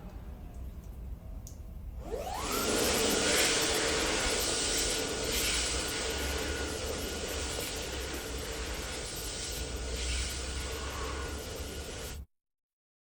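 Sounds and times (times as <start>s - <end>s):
fan whine: 0.0s - 12.2s
rush of air: 2.3s - 12.2s.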